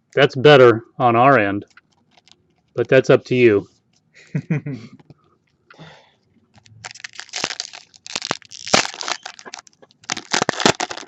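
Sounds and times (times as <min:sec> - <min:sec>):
plastic wrapper crinkling: 0:01.6 - 0:02.8, 0:06.5 - 0:11.0.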